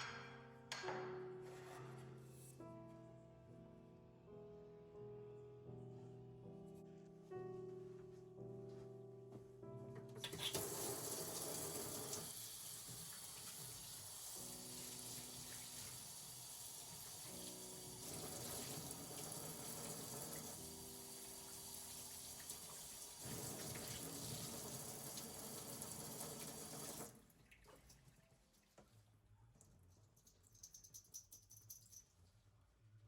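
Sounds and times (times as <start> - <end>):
soft piano music: 0.0 - 11.2, 13.0 - 23.2
tap water running into sink: 10.2 - 27.2.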